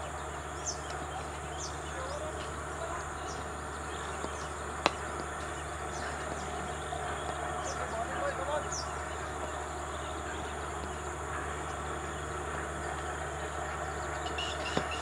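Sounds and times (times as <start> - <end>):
small birds chirping: 0.0 - 15.0
steady low hum: 0.0 - 15.0.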